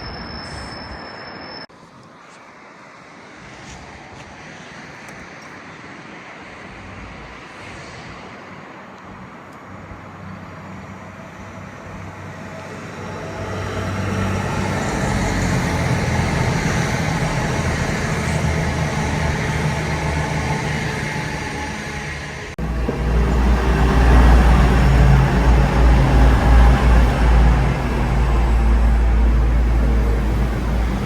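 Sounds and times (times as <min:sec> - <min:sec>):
train engine rumble: 0:00.0 - 0:31.0.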